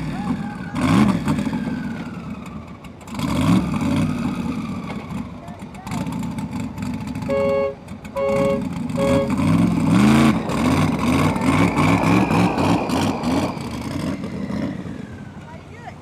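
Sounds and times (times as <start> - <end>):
vehicle engine revving: 0.0 - 15.7
two-tone vehicle horn toots: 7.2 - 10.3.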